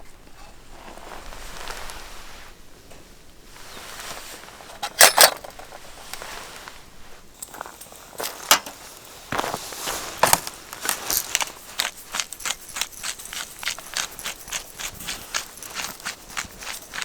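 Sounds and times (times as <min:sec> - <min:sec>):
footsteps crunching on hard ground: 0:07.4 - 0:17.0.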